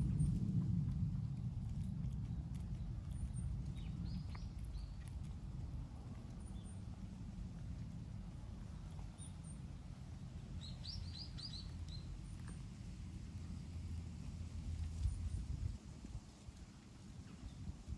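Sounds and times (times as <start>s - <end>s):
low outdoor rumble: 0.0s - 17.9s
small bird chirping: 3.2s - 5.0s, 10.6s - 12.4s.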